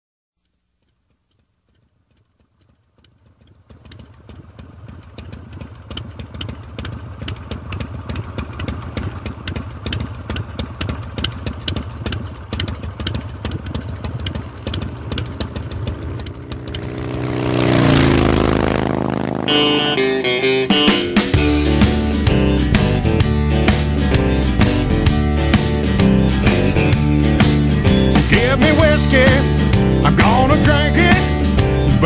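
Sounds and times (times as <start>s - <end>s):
motorcycle engine running: 0.8s - 32.0s.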